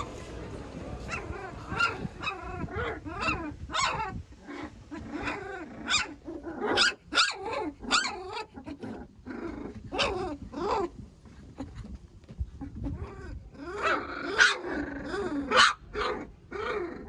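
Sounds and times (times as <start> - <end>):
dog barking: 13.8 - 14.6, 15.5 - 16.2.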